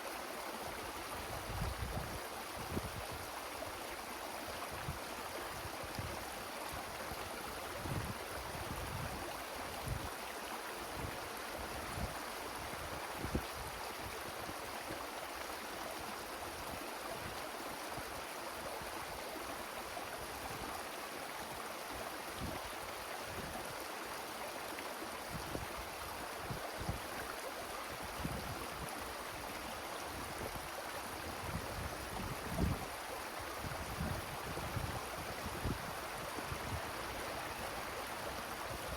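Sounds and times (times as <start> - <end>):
wind rushing through trees: 0.0 - 38.9
wind buffeting microphone: 33.6 - 37.0.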